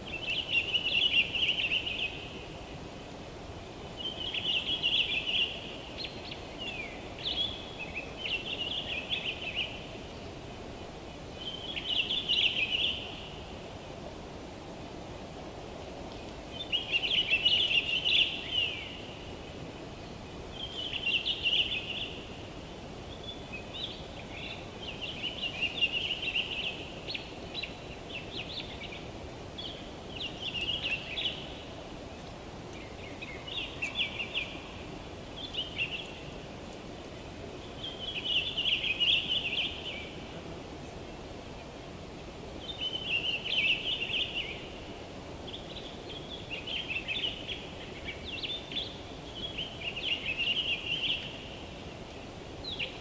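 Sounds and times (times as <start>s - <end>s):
low background hiss: 0.0s - 53.0s
songbird singing chattering notes: 23.1s - 36.3s.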